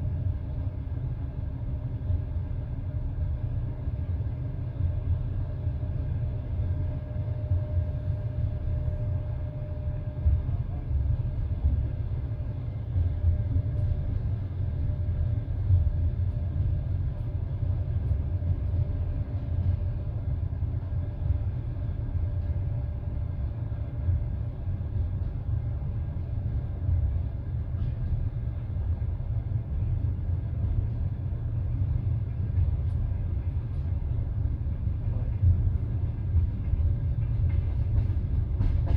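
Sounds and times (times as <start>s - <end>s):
train wheels rumbling on rails: 0.0s - 38.9s
train knocks: 32.1s - 38.9s.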